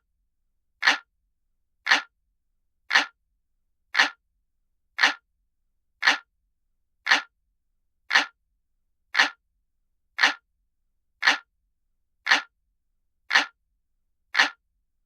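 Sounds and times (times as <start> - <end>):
analog clock ticking: 0.8 - 1.1, 1.9 - 2.1, 2.9 - 3.2, 4.0 - 4.2, 5.0 - 5.2, 6.0 - 6.3, 7.1 - 7.3, 8.1 - 8.4, 9.2 - 9.4, 10.2 - 10.4, 11.2 - 11.5, 12.3 - 12.5, 13.3 - 13.6, 14.4 - 14.6.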